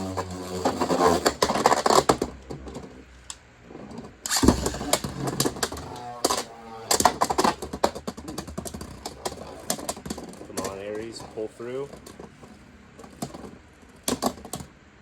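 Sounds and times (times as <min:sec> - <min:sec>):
spinning tops whining: 0:00.0 - 0:14.7
hard hits of spinning tops: 0:04.2 - 0:12.3.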